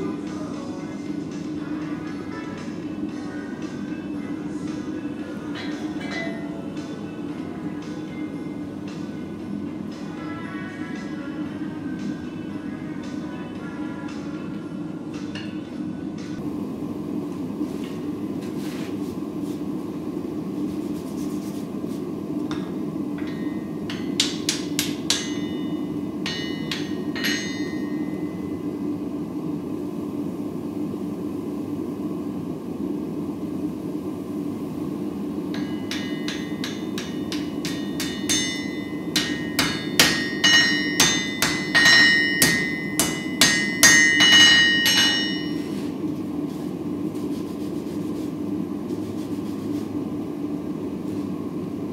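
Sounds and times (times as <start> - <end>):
steady low hum: 0.0 - 51.9
hammer striking steel anvil: 5.6 - 6.7, 22.5 - 28.5, 35.5 - 45.8.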